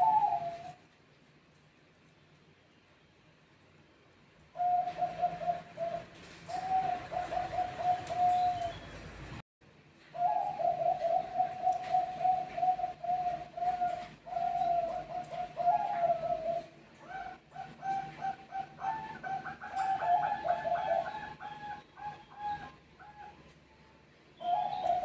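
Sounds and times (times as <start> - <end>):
doves cooing: 0.0 - 0.8, 4.5 - 9.0, 10.1 - 23.5, 24.4 - 25.0.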